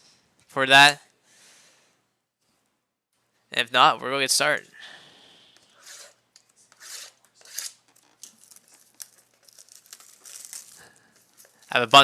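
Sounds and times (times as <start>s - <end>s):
packaging tearing and crinkling: 6.9s - 11.9s.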